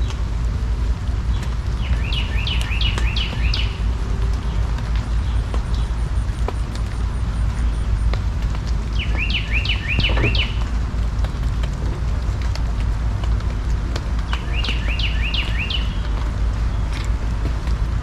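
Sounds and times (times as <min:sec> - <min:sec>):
steady low rumble: 0:00.0 - 0:18.0
small bird chirping: 0:09.0 - 0:10.6.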